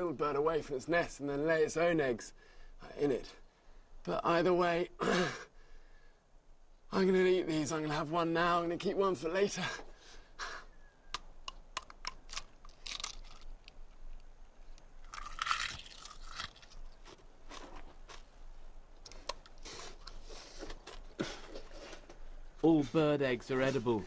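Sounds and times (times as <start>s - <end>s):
eggshell cracking clicks: 11.1s - 16.8s
crunching and chewing: 11.8s - 18.4s, 19.0s - 22.0s.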